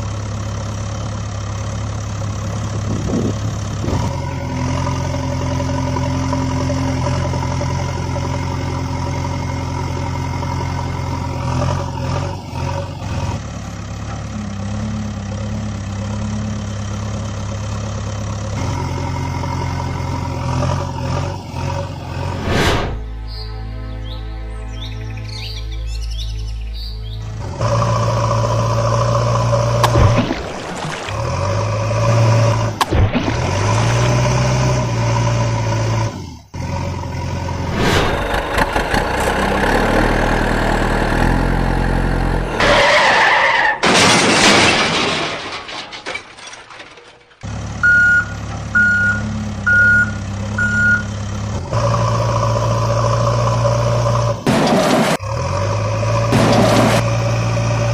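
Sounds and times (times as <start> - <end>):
heavy engines revving: 0.0 - 23.4, 26.8 - 57.9
short reversing beeps: 47.8 - 51.1.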